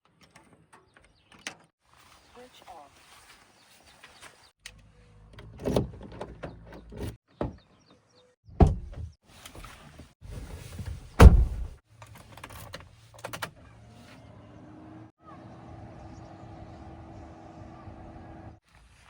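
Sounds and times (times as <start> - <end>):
metallic clunks and knocks: 11.2 - 11.7.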